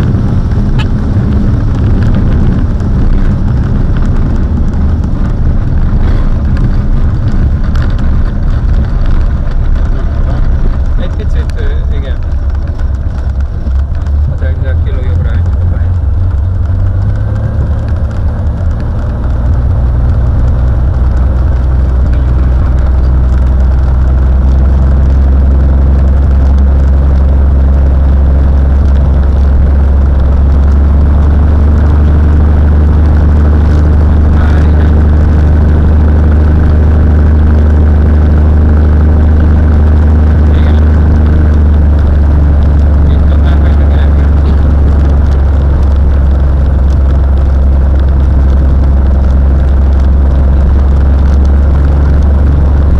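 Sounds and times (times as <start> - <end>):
propeller plane engine droning: 0.0 - 52.9.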